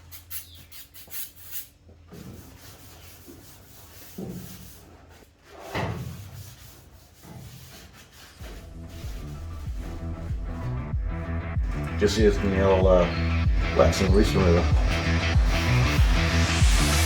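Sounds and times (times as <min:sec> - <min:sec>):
rag rubbing sheet metal: 0:00.0 - 0:16.9
background music: 0:08.4 - 0:17.0.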